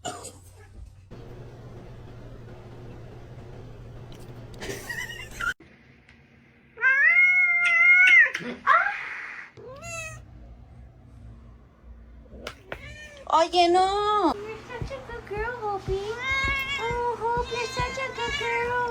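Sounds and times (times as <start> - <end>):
cat meowing: 9.6 - 10.2, 16.2 - 18.9.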